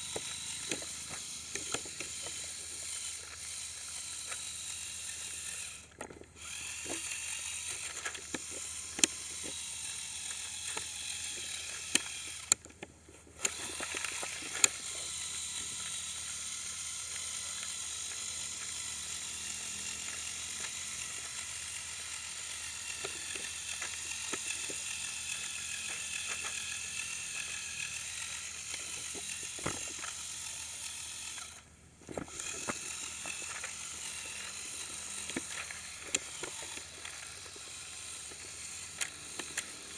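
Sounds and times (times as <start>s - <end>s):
clicks and knocks from drivetrain: 0.0s - 4.6s, 5.8s - 9.6s, 19.9s - 30.3s, 31.5s - 39.9s
toy motors and gears whining: 0.0s - 39.9s.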